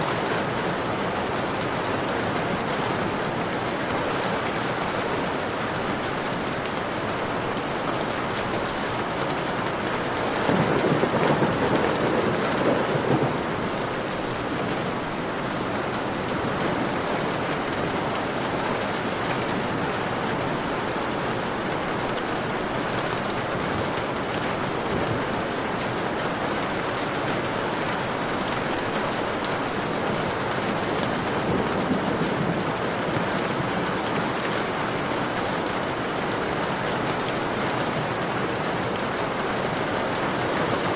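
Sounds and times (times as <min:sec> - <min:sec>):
heavy rain on a window: 0:00.0 - 0:40.9
thunder rumbling: 0:10.4 - 0:15.0, 0:31.1 - 0:33.2.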